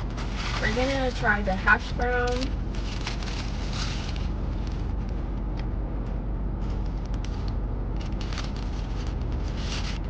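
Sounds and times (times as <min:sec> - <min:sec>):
food wrapper crackling: 0:01.9 - 0:05.1, 0:06.7 - 0:10.0.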